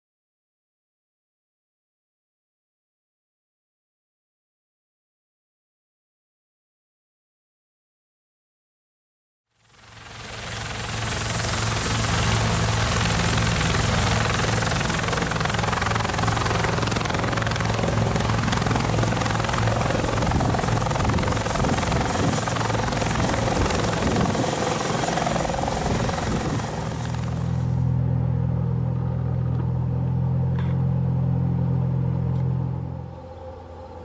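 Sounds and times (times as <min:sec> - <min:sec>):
helicopter running: 0:09.6 - 0:34.0.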